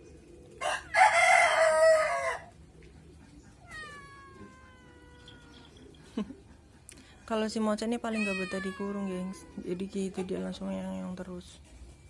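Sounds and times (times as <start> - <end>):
cat meowing: 3.5 - 5.8, 8.1 - 10.2
cat yowling raspily: 3.5 - 5.8, 8.0 - 10.6.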